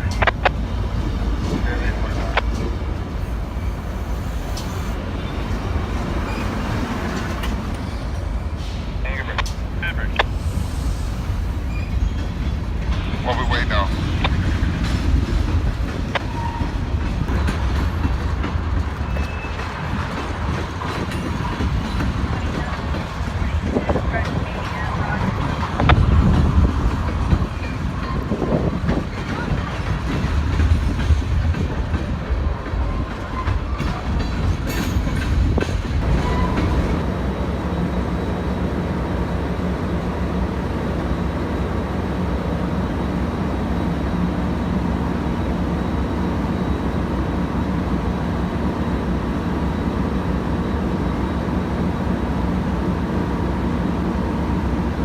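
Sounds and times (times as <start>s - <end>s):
train wheels clicking over rail joints: 0.0s - 37.2s
train running on track: 0.0s - 55.0s.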